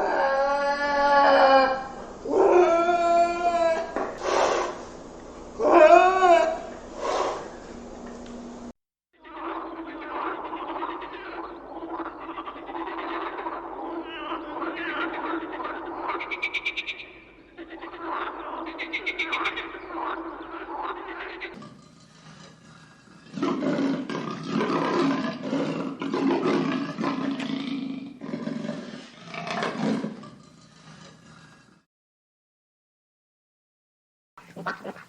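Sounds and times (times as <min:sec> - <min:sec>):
deep rough roar-like calls: 0:00.0 - 0:04.9, 0:09.3 - 0:16.7, 0:22.7 - 0:30.3
rapid pulsing croak-like call: 0:09.2 - 0:21.6, 0:34.4 - 0:35.0.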